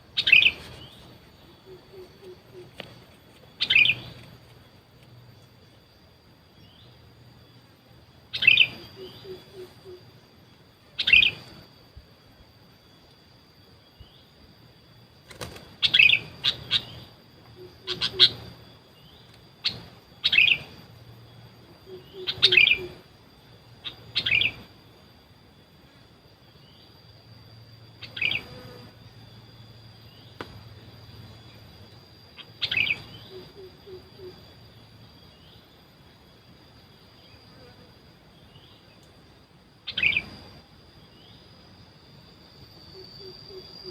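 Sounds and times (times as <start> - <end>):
bird chirping calls: 0.0 - 4.5, 8.3 - 10.2, 11.0 - 11.5, 15.8 - 20.7, 21.8 - 23.0, 23.8 - 24.7, 32.3 - 34.4, 39.9 - 40.5
faint high-pitched whine: 0.0 - 43.9.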